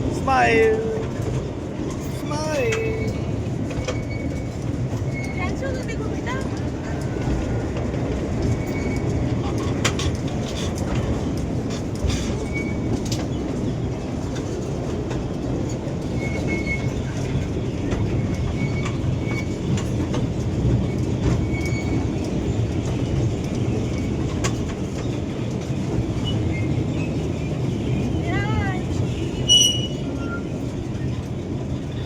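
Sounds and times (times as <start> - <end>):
small train rumbling on track: 0.0 - 32.0
wheels clicking over rails: 0.9 - 32.0
faint high squeaks: 29.5 - 30.4.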